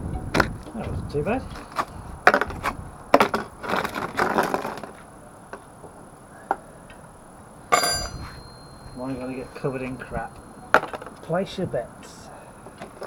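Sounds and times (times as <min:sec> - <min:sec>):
scraping and rustling: 0:01.4 - 0:05.1.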